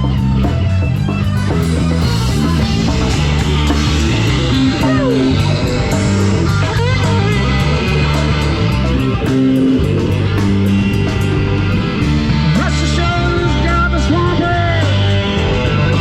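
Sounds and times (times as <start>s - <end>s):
bass guitar: 0.0s - 16.0s
electric guitar sliding notes: 0.0s - 16.0s
steady drum beat: 0.0s - 16.0s.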